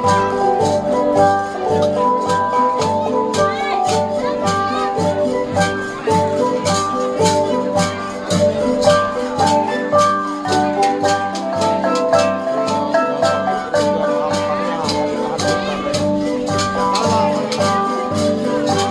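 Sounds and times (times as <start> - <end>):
gong ensemble playing: 0.0 - 18.9.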